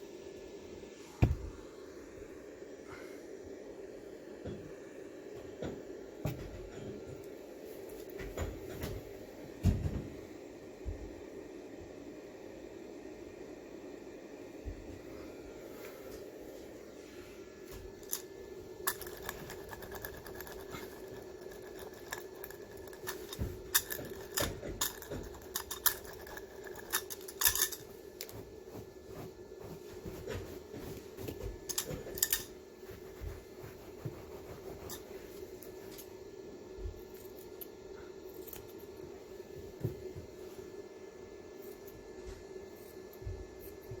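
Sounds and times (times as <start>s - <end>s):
steady low hum: 0.0s - 44.0s
hand tools on carpet: 1.0s - 1.6s, 14.7s - 40.7s.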